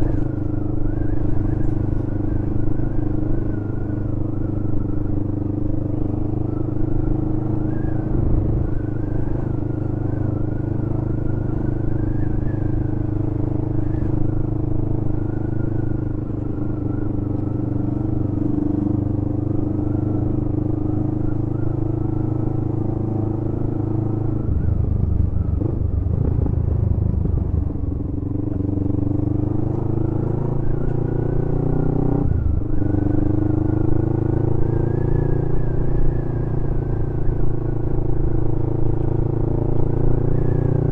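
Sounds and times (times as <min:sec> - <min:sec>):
motorcycle engine running: 0:22.2 - 0:30.9.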